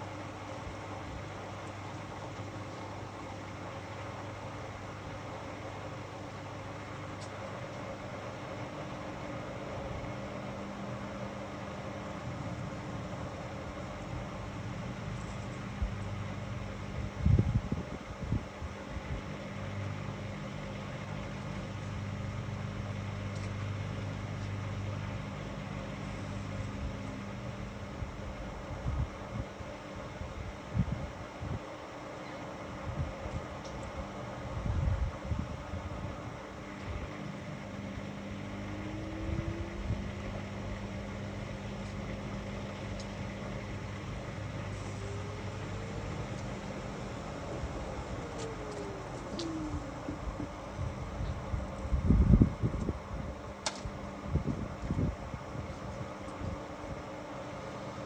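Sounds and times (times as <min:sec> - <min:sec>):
washing machine motor hum: 0:32.7 - 0:58.0
rising motor whine: 0:34.0 - 0:53.5.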